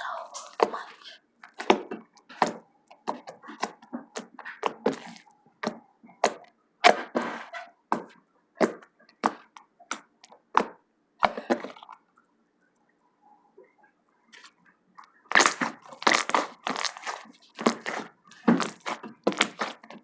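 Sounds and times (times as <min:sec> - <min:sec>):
slime squishing with wet pops: 0:01.4 - 0:07.2, 0:07.9 - 0:12.0, 0:14.4 - 0:20.0.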